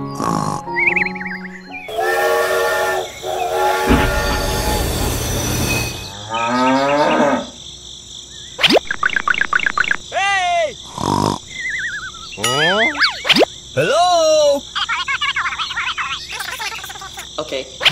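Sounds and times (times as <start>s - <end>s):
rising whistle: 1.7s - 6.2s
hissing: 1.9s - 6.1s
train running rumble: 1.9s - 6.2s
train horn: 1.9s - 6.3s
cow mooing: 6.1s - 7.6s
rapid warbling chirps: 8.5s - 10.1s, 11.4s - 13.8s.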